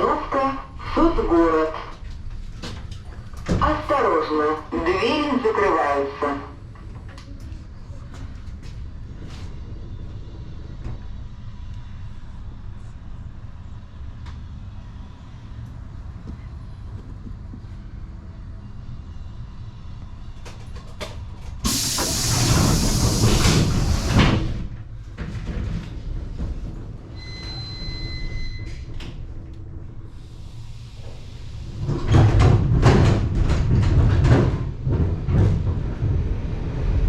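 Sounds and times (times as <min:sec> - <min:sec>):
train rumbling: 0:00.0 - 0:37.0
loud hiss: 0:21.6 - 0:24.4.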